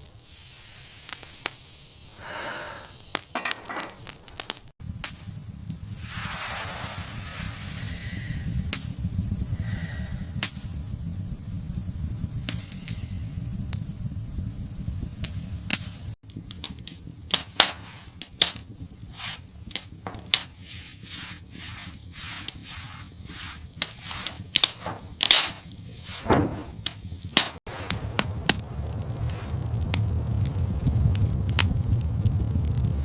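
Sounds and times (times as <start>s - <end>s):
sharp cracks and knocks: 3.0s - 5.3s, 15.2s - 32.9s
low rumbling background: 4.8s - 33.0s.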